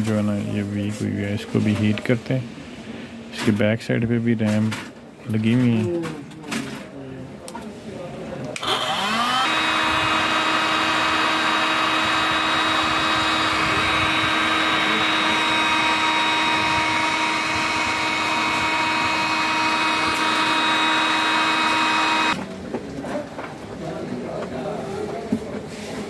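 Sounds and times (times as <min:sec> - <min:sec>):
hot-air gun blower whining: 0:08.6 - 0:22.4.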